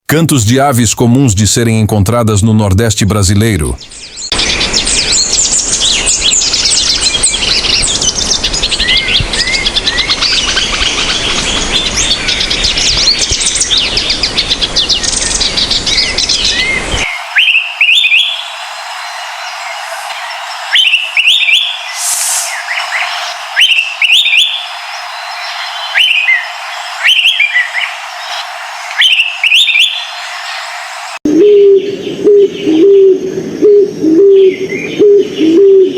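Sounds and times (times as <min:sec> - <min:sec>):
chorus of birds chirping: 0:03.7 - 0:35.9
bird repeating rising call: 0:15.9 - 0:35.9
steady hiss: 0:16.9 - 0:31.2.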